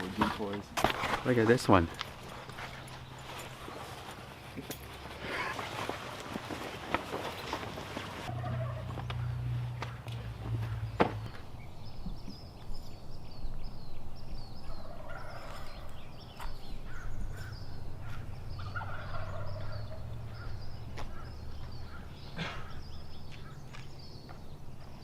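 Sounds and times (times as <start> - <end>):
small birds chirping: 1.2 - 5.6, 8.2 - 25.0
turkey gobbling: 8.3 - 9.0, 18.1 - 20.2.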